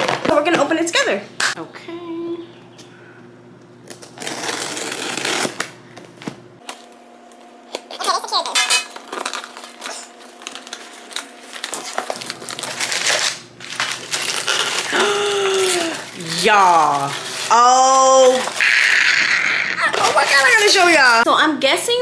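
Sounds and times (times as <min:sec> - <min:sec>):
packaging rustling and tearing: 0:03.9 - 0:05.7, 0:08.4 - 0:21.3.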